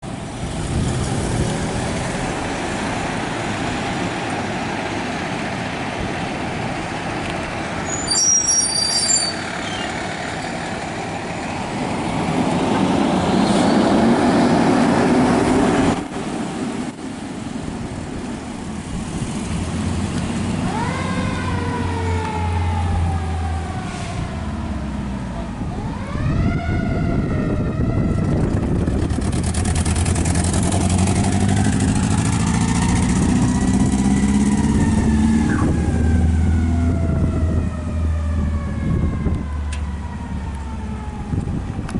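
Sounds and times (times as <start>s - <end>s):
fire engine passing: 0.0s - 41.9s
siren wail: 20.5s - 29.1s, 31.8s - 41.9s.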